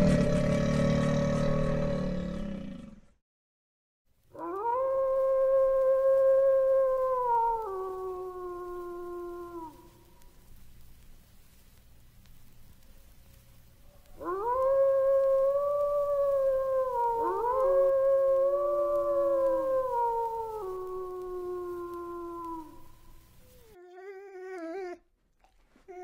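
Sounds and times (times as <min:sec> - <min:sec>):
wolves howling: 0:04.4 - 0:10.1, 0:14.1 - 0:25.0
dog whining: 0:23.4 - 0:26.0.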